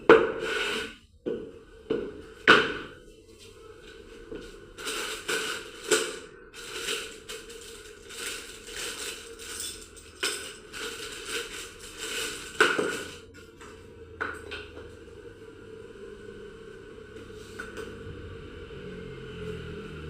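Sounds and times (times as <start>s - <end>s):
faint steady hum: 1.0s - 20.0s
metal tools clattering and scraping: 4.3s - 13.6s.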